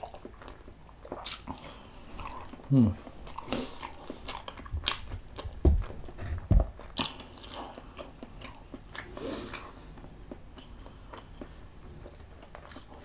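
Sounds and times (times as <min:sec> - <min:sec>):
person chewing and biting food: 0:00.0 - 0:13.0
dull low thumps: 0:04.6 - 0:06.9.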